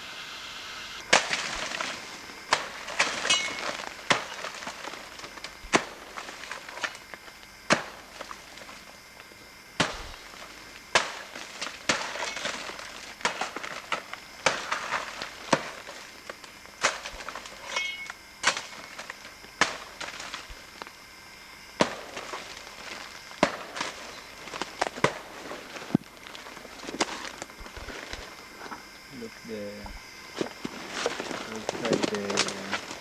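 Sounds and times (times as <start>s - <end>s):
twigs snapping: 30.5s - 33.0s.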